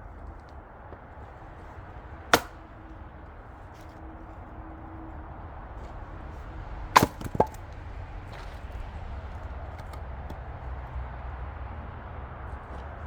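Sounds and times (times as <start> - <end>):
axe chopping firewood: 0.4 - 2.8, 6.9 - 8.9.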